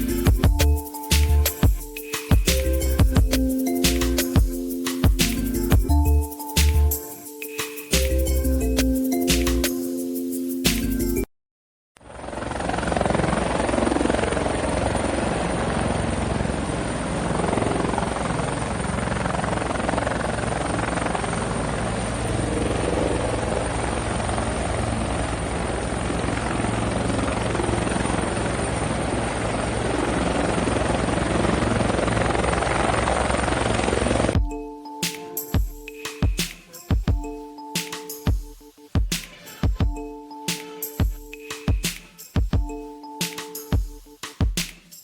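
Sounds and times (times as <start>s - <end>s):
helicopter rotor chopping: 12.1s - 34.4s.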